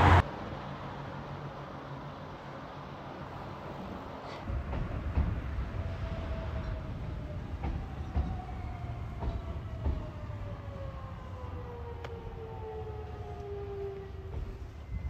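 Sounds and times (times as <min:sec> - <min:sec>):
train rumble: 0:03.1 - 0:15.0.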